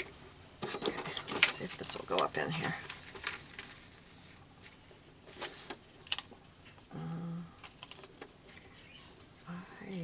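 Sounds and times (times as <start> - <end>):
paper rustling: 0.7 - 6.9, 7.6 - 9.5
person humming: 6.9 - 7.6.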